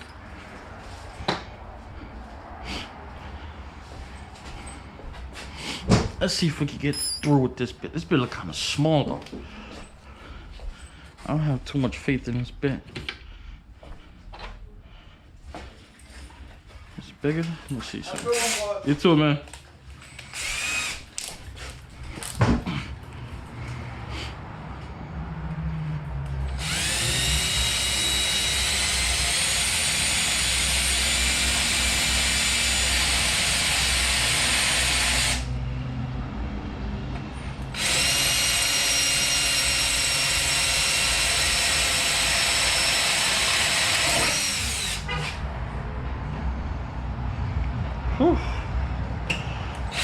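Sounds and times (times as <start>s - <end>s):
power drill boring into metal: 18.2s - 18.8s, 20.1s - 21.1s, 26.5s - 35.5s, 37.7s - 45.4s.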